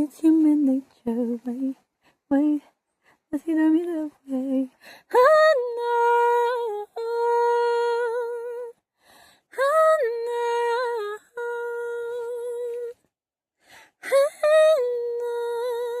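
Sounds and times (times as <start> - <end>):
woman breathing in: 9.0 - 9.5, 13.6 - 14.0.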